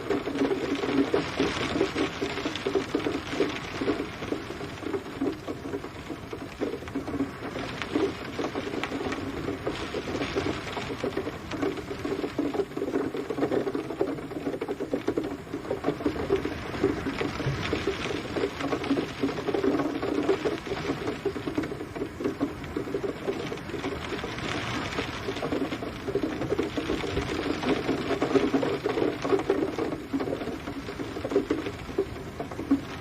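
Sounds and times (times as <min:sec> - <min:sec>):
rain pattering: 0:00.0 - 0:33.0.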